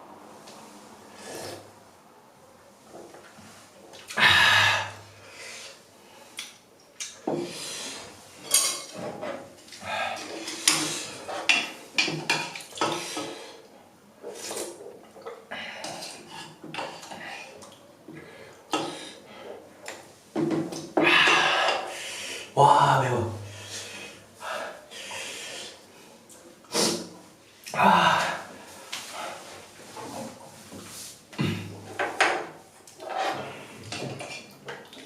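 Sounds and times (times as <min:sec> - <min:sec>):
utensils clinking on a dish: 0:08.4 - 0:09.3, 0:10.1 - 0:13.5.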